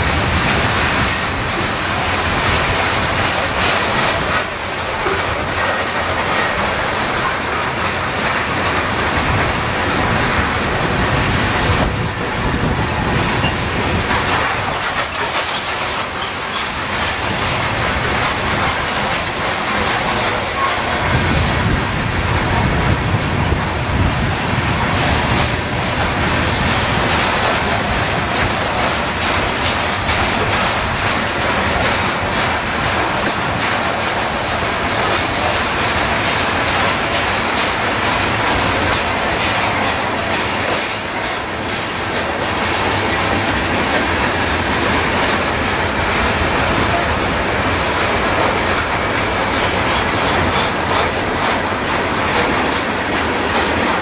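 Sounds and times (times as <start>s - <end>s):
freight cars rumbling and clacking: 0.0s - 54.0s.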